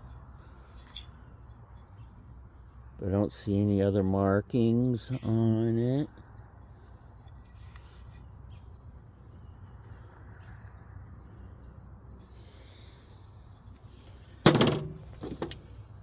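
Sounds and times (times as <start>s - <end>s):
faint high chirps and ticks: 5.8s - 12.3s.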